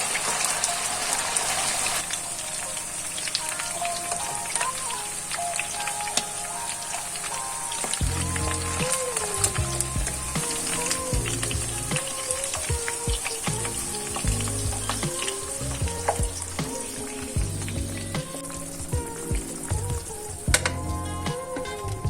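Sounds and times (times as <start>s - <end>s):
chicken sizzling in a frying pan: 0.0s - 9.5s
background music: 0.0s - 22.0s.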